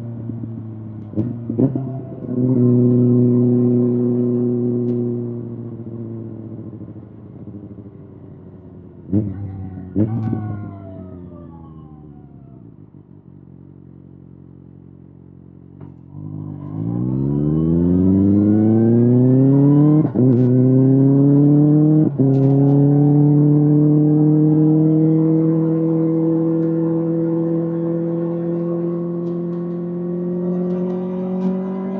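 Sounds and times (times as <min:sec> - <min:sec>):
motorcycle engine accelerating: 0:00.0 - 0:31.9
engine throttle blips: 0:15.8 - 0:31.9.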